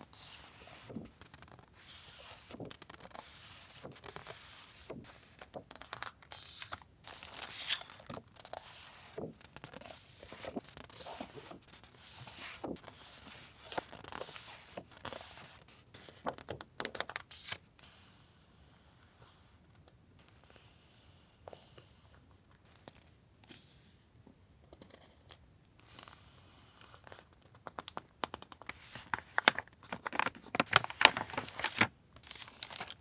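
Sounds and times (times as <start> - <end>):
packaging crinkling and tearing: 27.8 - 33.0.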